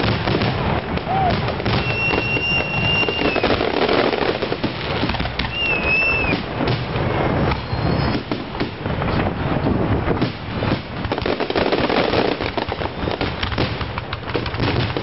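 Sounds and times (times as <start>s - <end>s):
firework bursts and crackling: 0.0s - 15.0s
firework whistle: 1.0s - 4.3s, 5.1s - 8.6s, 12.6s - 13.6s.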